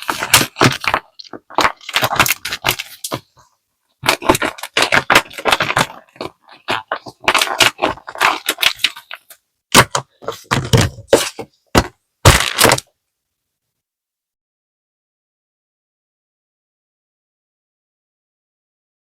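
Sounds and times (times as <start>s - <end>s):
paper crinkling and crackling: 0.0s - 3.4s, 4.0s - 12.9s.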